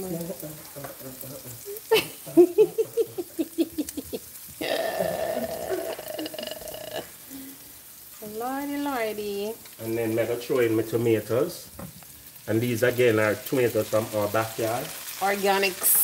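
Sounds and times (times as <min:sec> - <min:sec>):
sausages and onions sizzling: 0:00.0 - 0:16.0
voices: 0:08.2 - 0:09.6, 0:12.5 - 0:16.0.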